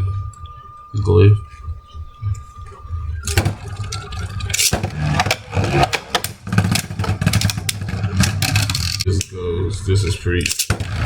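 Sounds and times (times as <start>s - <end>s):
spinning tops whirring: 3.2s - 9.1s, 10.5s - 11.0s
tops clacking and scraping: 3.2s - 9.4s, 10.3s - 11.0s.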